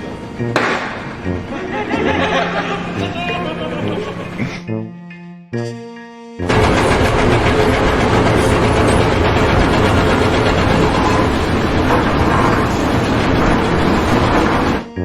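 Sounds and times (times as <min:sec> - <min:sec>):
heavy machine running: 0:01.1 - 0:04.5, 0:06.4 - 0:15.0.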